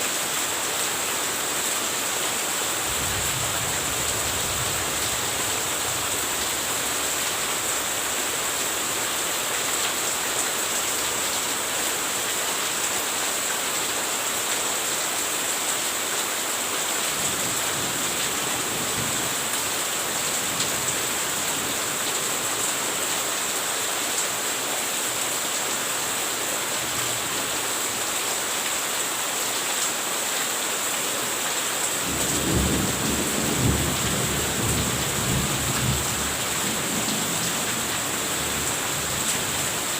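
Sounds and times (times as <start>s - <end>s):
steady rain falling: 0.0s - 39.9s
low rumble of thunder: 32.1s - 37.9s.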